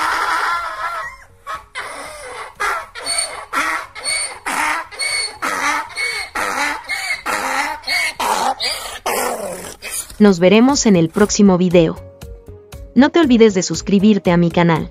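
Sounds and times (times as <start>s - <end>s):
donkey braying: 0.0s - 10.2s.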